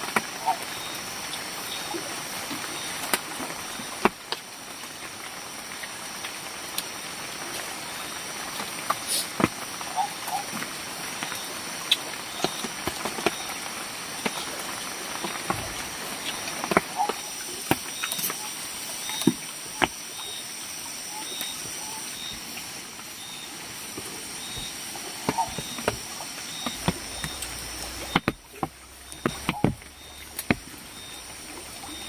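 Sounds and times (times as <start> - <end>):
steady hiss: 0.0 - 32.0
eating clicks and taps: 25.3 - 30.7.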